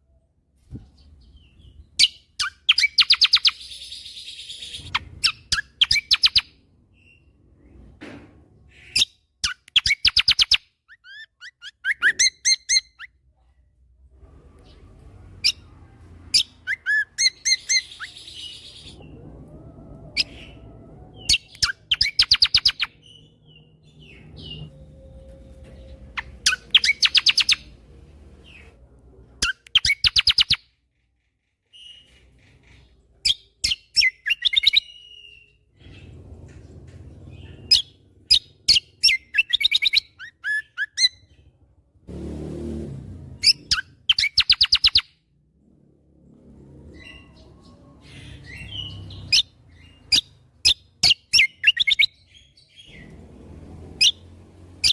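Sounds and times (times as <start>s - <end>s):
low rumble: 17.6s - 21.9s, 22.9s - 26.7s.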